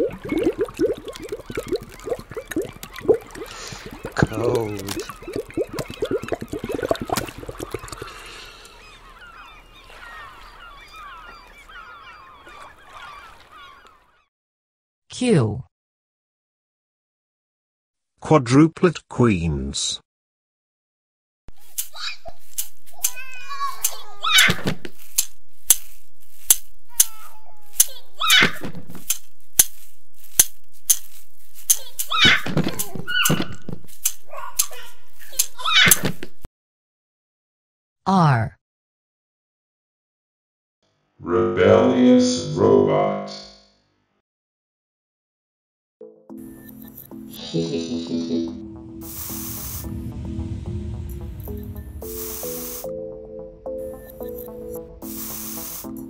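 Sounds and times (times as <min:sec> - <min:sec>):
overlapping cartoon bird calls: 0:00.0 - 0:14.0, 0:23.0 - 0:24.7, 0:26.9 - 0:28.7, 0:31.7 - 0:33.7
children squealing and giggling: 0:23.0 - 0:24.8, 0:26.9 - 0:28.7, 0:31.8 - 0:33.6, 0:34.3 - 0:36.2.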